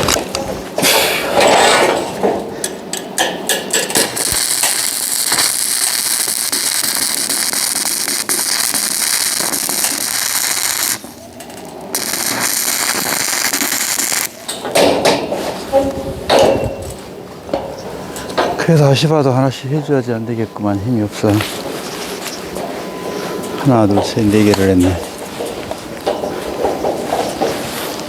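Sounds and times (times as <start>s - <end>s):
crackling welding arc: 3.5s - 15.9s.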